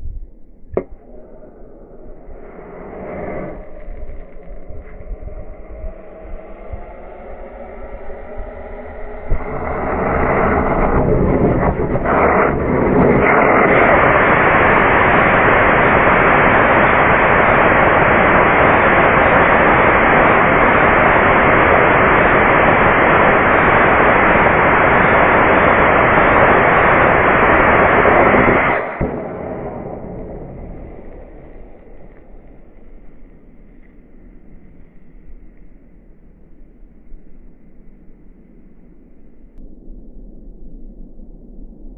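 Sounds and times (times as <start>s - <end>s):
rocket motor ignition pop: 0.7s - 1.2s, 13.2s - 33.0s
rocket motor rushing roar: 0.8s - 39.7s.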